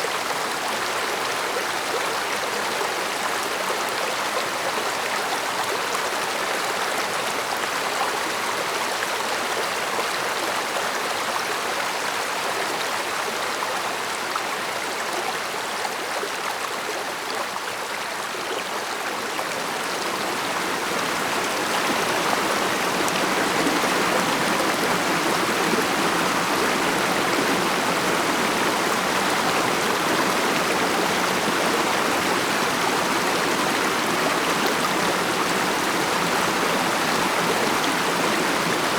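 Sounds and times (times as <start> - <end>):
mountain stream rushing: 17.2 - 38.9.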